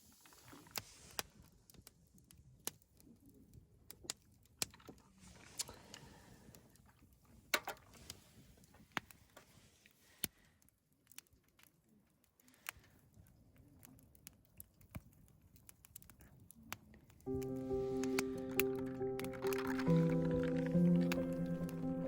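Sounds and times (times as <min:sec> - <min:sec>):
faint clicks and knocks: 0:17.3 - 0:22.0.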